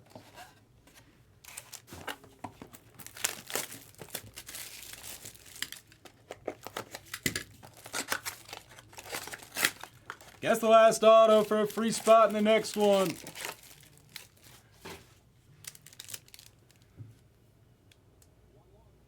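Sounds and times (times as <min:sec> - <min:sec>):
packaging crinkling and tearing: 0:01.4 - 0:14.6, 0:15.6 - 0:16.8.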